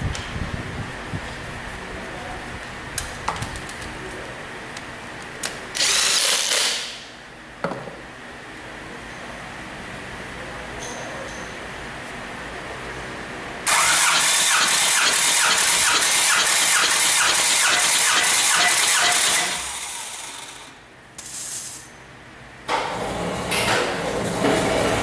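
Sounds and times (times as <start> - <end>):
starter motor cranking diesel engine: 13.7 - 20.7.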